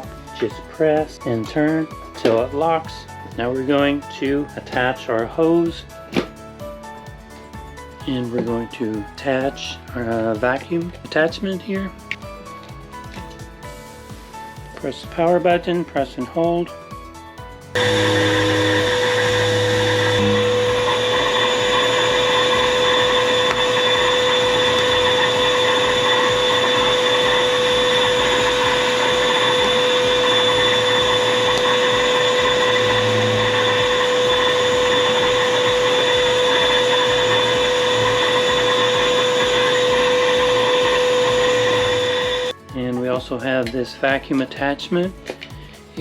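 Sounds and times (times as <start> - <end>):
vacuum motor whine: 17.8 - 42.5.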